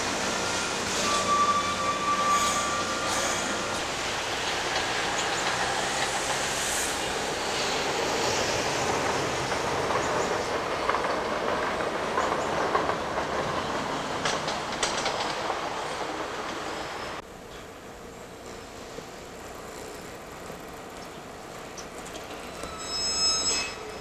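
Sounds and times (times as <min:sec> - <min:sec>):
train wheels clattering over rails: 0:02.3 - 0:17.7.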